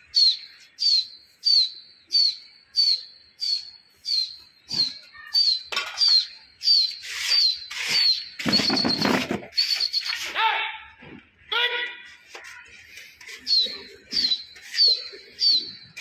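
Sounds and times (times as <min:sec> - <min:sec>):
small bird calling: 0:00.0 - 0:10.4, 0:13.2 - 0:16.0.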